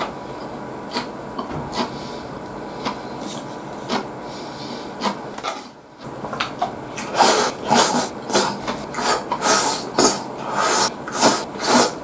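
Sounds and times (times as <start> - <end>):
chewing and mouth noises: 0.9 - 2.0, 2.8 - 4.1.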